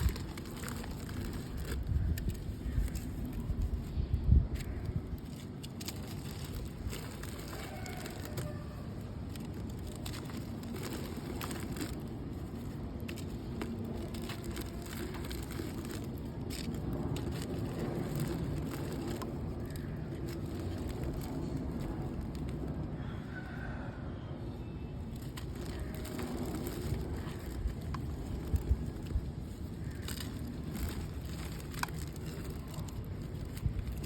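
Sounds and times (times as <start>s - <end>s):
wet mud crunching in water: 4.6s - 22.7s, 25.2s - 34.0s.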